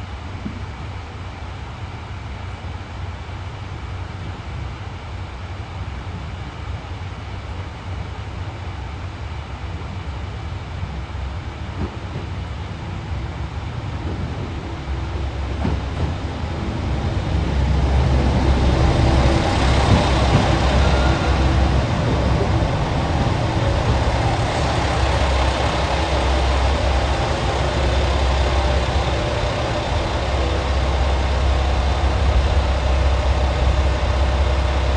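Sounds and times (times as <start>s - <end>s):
diesel train engine rumble: 10.3s - 34.9s.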